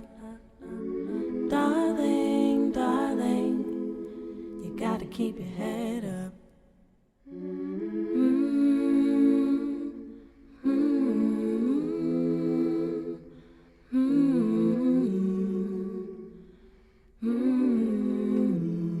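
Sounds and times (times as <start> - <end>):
women's choir humming: 0.0 - 5.9.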